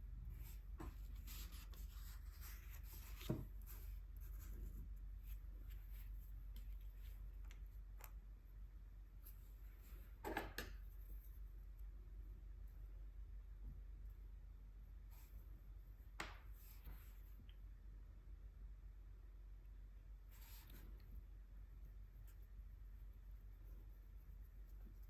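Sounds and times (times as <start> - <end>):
brush strokes rubbing on paper: 0.3 - 7.3, 21.8 - 25.0.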